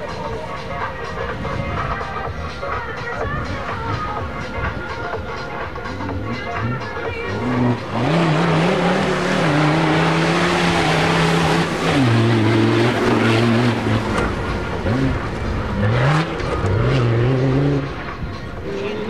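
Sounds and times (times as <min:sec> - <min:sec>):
racing car engine revving: 0:05.8 - 0:19.0.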